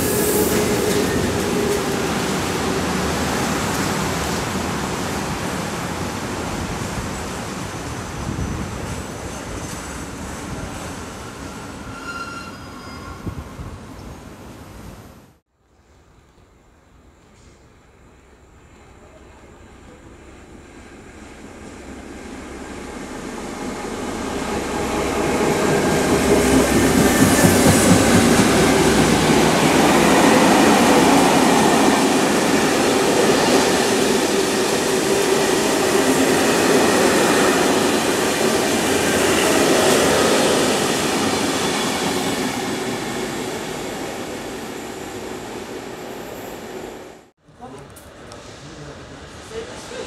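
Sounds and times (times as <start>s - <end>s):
diesel locomotives passing: 0.0s - 14.8s, 17.3s - 47.3s.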